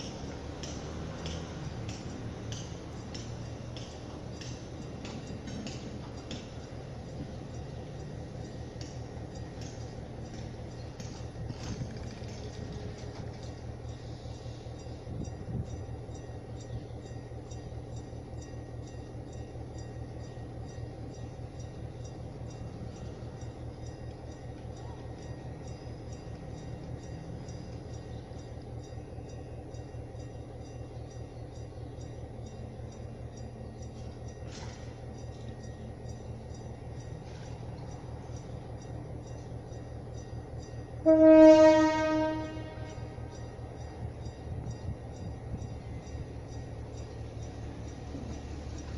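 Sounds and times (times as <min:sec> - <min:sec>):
train engine droning: 0:00.0 - 0:48.9
train horn blast: 0:41.0 - 0:43.3.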